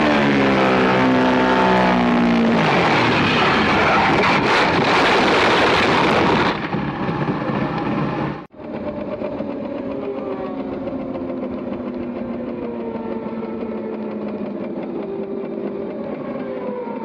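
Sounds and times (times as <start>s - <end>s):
motorcycle engine running: 6.8s - 17.0s.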